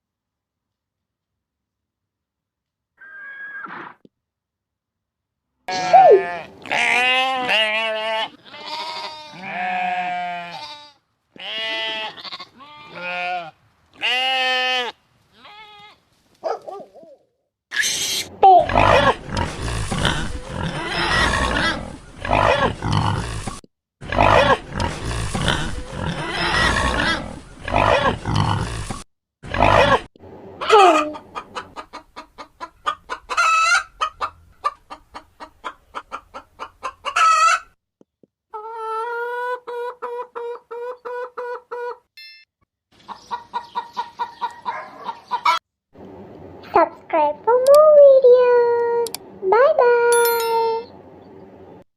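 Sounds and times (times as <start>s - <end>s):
goat bleating: 5.7s - 16.0s
pig grunting and squealing: 17.7s - 31.2s
chicken clucking: 30.6s - 37.7s, 38.5s - 42.1s, 43.0s - 45.6s.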